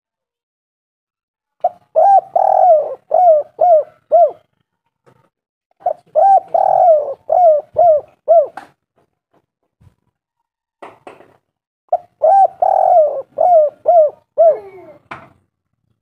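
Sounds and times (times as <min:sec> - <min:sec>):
dove cooing: 0:01.6 - 0:04.5, 0:05.8 - 0:08.7, 0:11.9 - 0:15.1.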